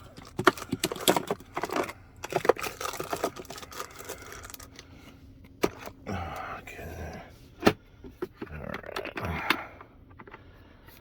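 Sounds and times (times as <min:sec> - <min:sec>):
plastic clicks and rattling: 0:00.2 - 0:04.8.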